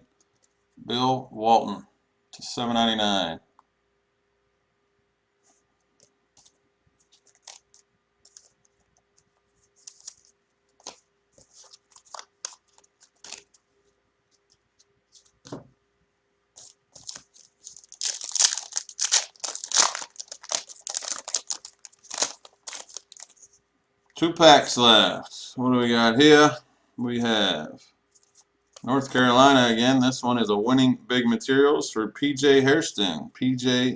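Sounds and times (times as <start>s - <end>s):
foil wrapper crinkling: 6.4s - 8.8s, 9.6s - 13.6s, 16.6s - 23.6s
foil wrapper tearing: 7.1s - 8.6s, 11.6s - 13.6s, 16.6s - 23.4s.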